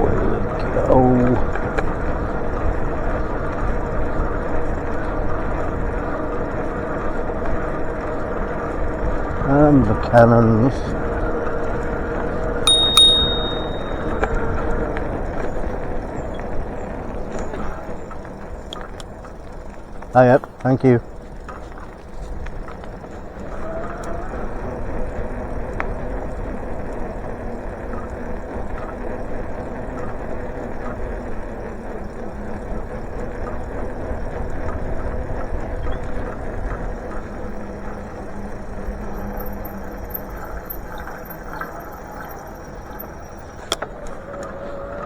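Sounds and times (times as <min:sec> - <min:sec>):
bicycle tyres on road: 0:00.0 - 0:45.0
wavering hum: 0:12.7 - 0:14.4, 0:37.3 - 0:44.6.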